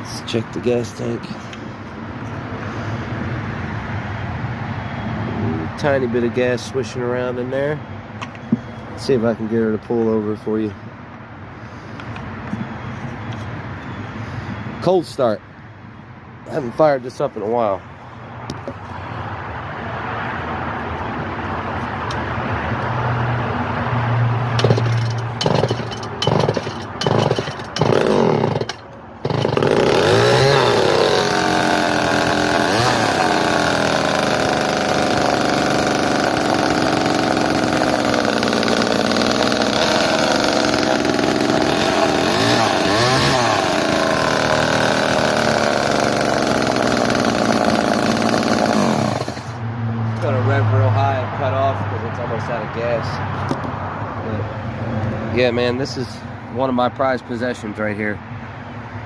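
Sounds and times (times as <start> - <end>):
chainsaw engine revving: 24.5 - 49.6
starter cord pulls: 24.6 - 44.4.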